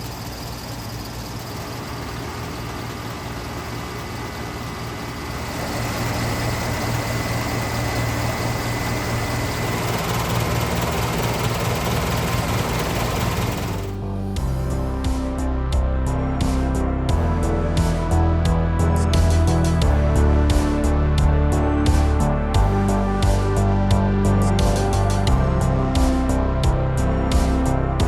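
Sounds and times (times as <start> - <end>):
thin high whine: 0.0 - 13.9
heat pump compressor hum: 0.0 - 15.3.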